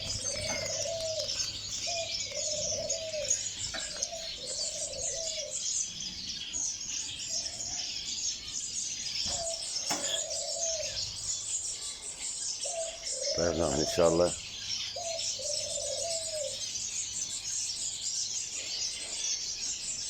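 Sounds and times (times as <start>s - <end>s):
dove cooing: 0.0s - 6.4s, 9.2s - 11.5s, 12.6s - 16.7s
finches chirping and twittering: 0.0s - 20.0s.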